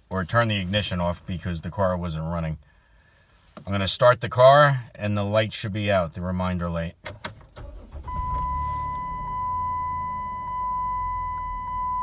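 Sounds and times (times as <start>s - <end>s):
car engine starting and idling: 7.0s - 12.0s.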